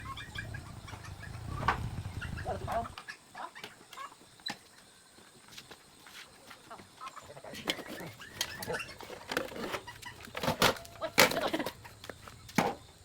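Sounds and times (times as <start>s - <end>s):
low rumble: 0.0s - 3.0s
bird-like animal calls: 0.0s - 4.2s.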